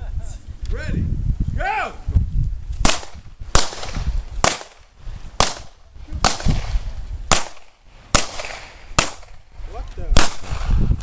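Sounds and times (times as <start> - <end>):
pistol shots with echo: 2.8 - 9.4, 10.1 - 10.8.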